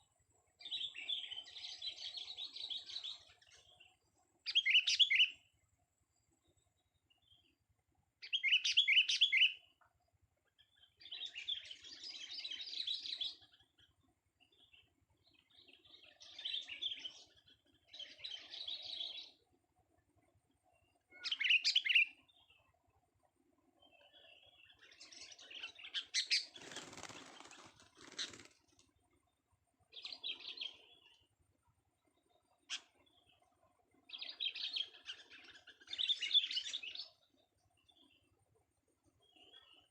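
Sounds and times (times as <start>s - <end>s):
bird singing chirpy phrases: 0.5s - 5.5s, 8.2s - 9.7s, 10.6s - 19.4s, 20.7s - 22.8s, 23.7s - 27.4s, 29.9s - 31.3s, 32.0s - 38.4s, 39.2s - 39.9s
wing flapping: 26.3s - 28.9s.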